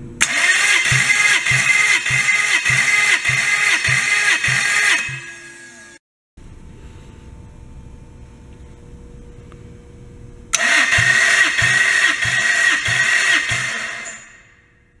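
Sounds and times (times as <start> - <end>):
starter motor cranking: 0.2 - 6.0, 10.5 - 14.5.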